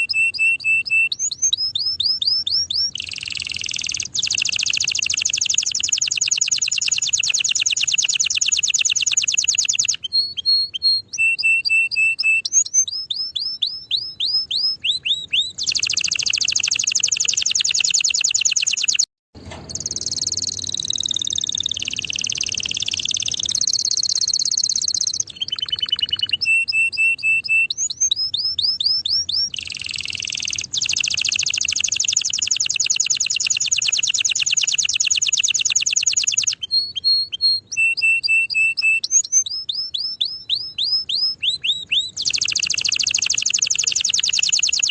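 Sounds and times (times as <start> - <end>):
canary singing: 0.0 - 44.9.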